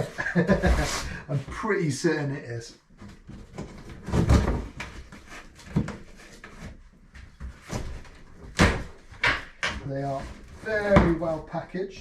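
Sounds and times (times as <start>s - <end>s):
rustling cardboard: 0.0s - 1.6s, 3.0s - 9.2s.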